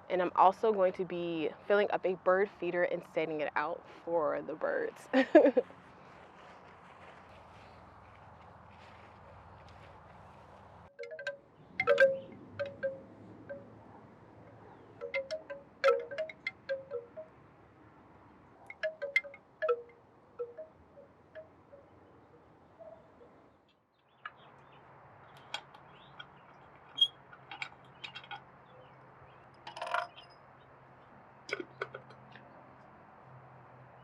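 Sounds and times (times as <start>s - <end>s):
short rustle: 5.6s - 10.8s
wooden wind chime knocking: 11.0s - 13.6s, 15.0s - 17.3s, 18.7s - 20.7s.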